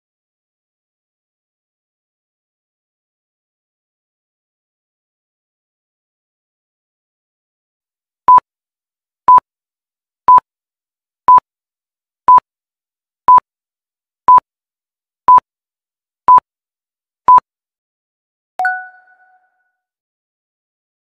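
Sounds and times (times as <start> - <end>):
two-tone ding: 18.6 - 19.6.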